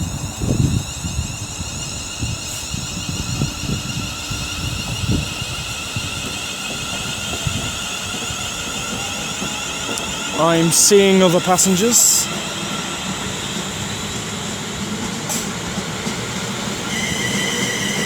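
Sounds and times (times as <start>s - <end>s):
high-pitched whining tones: 0.0s - 14.4s
train rumble: 0.0s - 18.0s.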